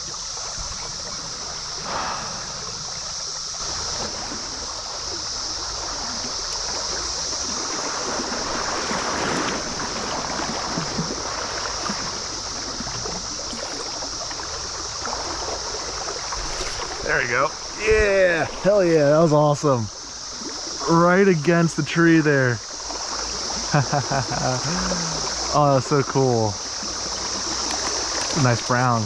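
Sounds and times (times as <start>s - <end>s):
high-pitched cicada chorus: 0.0s - 29.0s
stream running over riffles: 0.0s - 29.0s.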